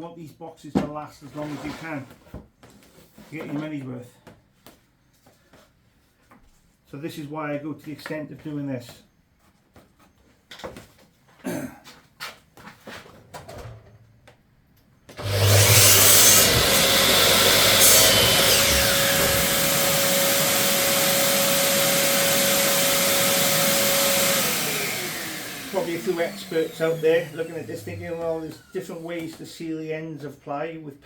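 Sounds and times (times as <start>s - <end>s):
power tool whining: 15.2s - 29.3s.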